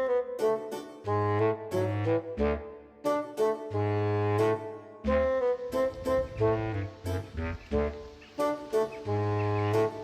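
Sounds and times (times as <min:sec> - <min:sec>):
saxophone melody: 0:00.0 - 0:10.0
bass line: 0:05.1 - 0:08.0.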